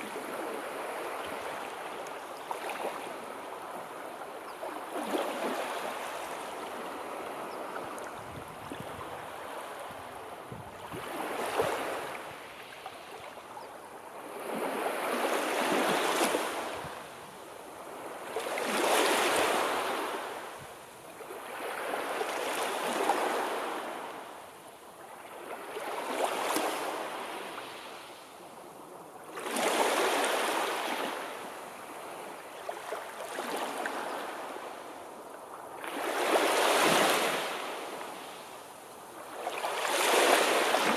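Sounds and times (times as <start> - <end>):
sea waves breaking: 39.2 - 40.9.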